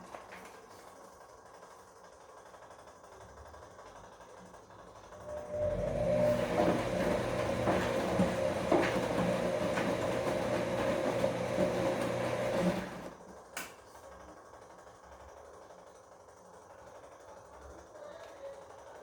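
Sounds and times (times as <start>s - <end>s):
washing machine motor whine: 4.9s - 13.3s
laundry tumbling in drum: 6.1s - 13.1s.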